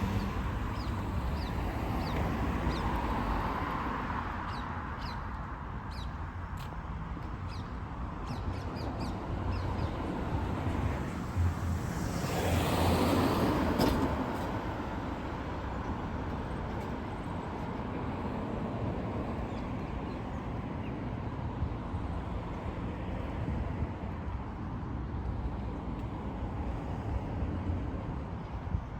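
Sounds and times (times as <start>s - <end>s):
city traffic rumble: 0.0s - 28.9s.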